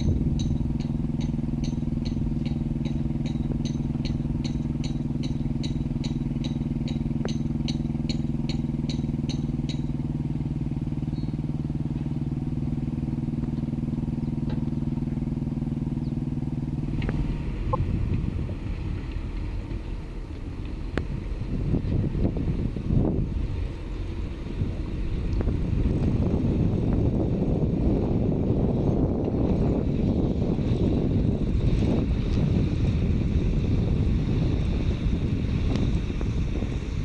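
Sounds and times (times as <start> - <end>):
wind noise: 0.0 - 4.8, 16.9 - 37.0
diesel engine running: 0.0 - 37.0.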